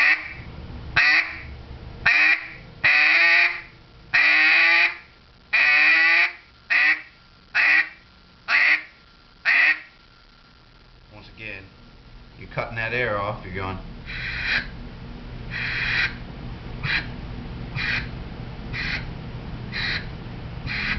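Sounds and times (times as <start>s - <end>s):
duck call quacks: 0.0s - 0.4s, 1.0s - 1.5s, 2.1s - 5.0s, 5.6s - 8.9s, 9.5s - 9.9s, 14.1s - 14.7s, 15.5s - 16.2s, 16.8s - 17.1s, 17.8s - 18.1s, 18.7s - 19.1s, 19.7s - 20.1s, 20.7s - 20.9s.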